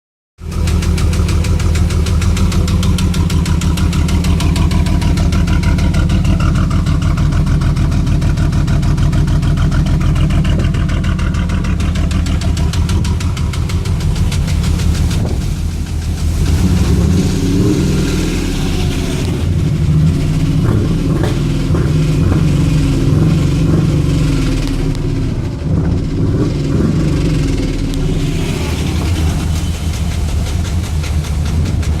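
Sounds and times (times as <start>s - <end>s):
engine rod knocking: 0.4s - 16.7s, 28.4s - 32.0s
car engine idling and revving: 0.4s - 32.0s.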